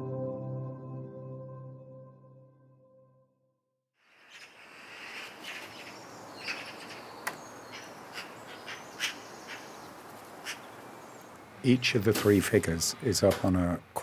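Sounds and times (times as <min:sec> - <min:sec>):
birds chirping: 0:04.1 - 0:13.6
steady background hiss: 0:04.1 - 0:14.0.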